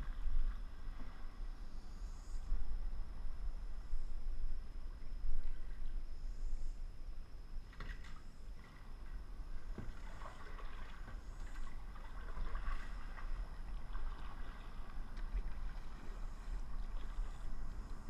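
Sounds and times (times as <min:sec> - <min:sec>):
steady low rumble: 0:00.0 - 0:18.0
water splashing from paddling: 0:09.6 - 0:18.0.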